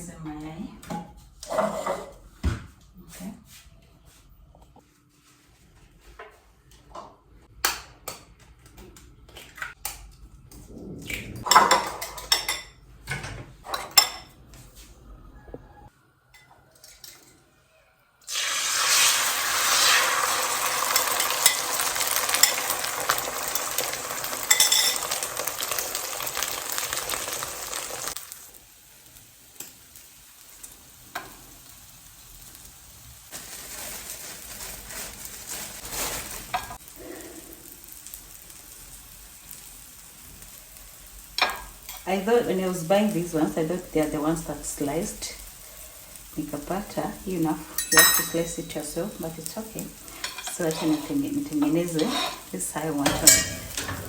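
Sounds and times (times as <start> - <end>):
utensils clinking on dishes: 11.4 - 14.4, 16.3 - 17.5, 20.6 - 26.2, 47.7 - 48.9, 50.1 - 54.0
eggs sizzling in hot oil: 18.2 - 54.0.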